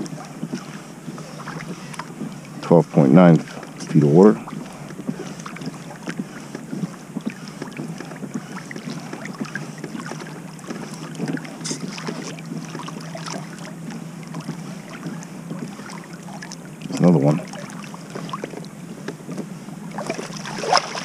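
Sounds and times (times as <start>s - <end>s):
steady low hum: 0.0s - 21.0s
small water splashes: 7.2s - 18.8s, 19.8s - 21.0s.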